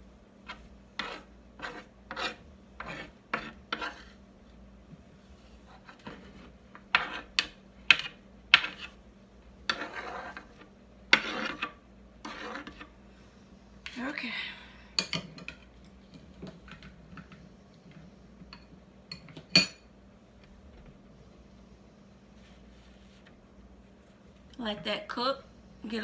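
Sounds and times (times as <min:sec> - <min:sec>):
utensil scraping a pan: 0:00.4 - 0:04.2, 0:05.5 - 0:09.0, 0:09.6 - 0:13.0.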